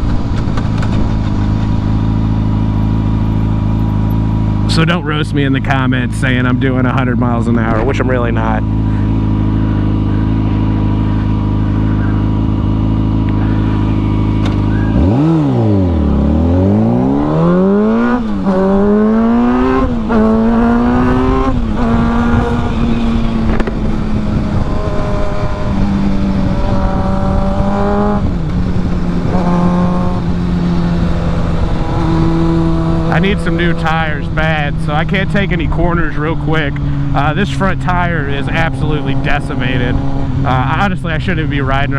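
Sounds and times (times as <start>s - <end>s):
motorcycle engine: 0.0s - 41.9s
wind on microphone: 19.7s - 33.1s.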